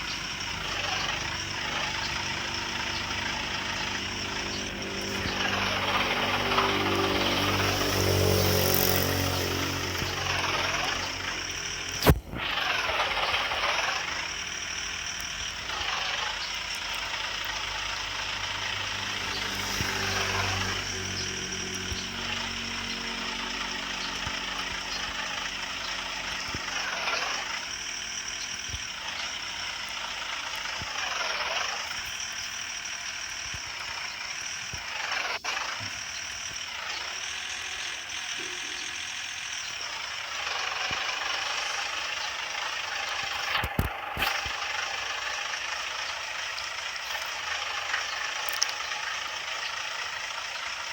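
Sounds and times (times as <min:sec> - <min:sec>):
truck engines running: 0:00.0 - 0:50.9.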